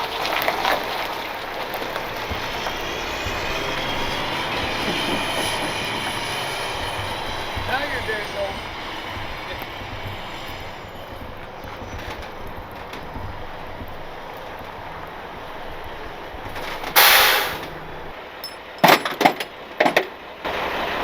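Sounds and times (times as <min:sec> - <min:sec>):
truck engine idling: 0:00.0 - 0:21.0
sharp loud knocks: 0:01.5 - 0:18.2
burst of hiss: 0:16.6 - 0:18.1.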